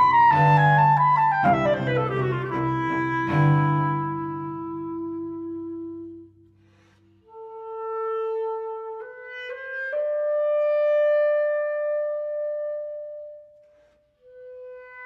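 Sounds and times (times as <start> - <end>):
low cello note: 0.0 - 6.2
clarinet slow melody: 0.0 - 13.6.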